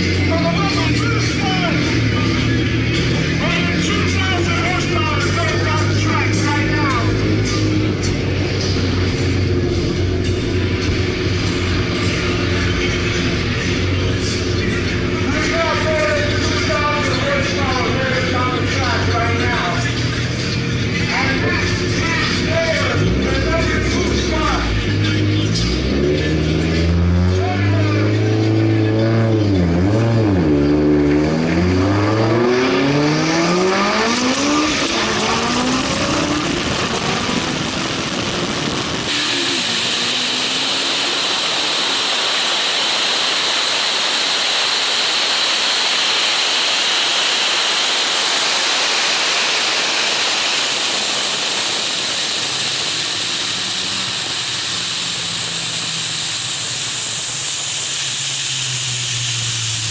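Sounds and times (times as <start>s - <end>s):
car engine accelerating: 0.0s - 59.9s
wind noise rushing: 34.5s - 42.4s.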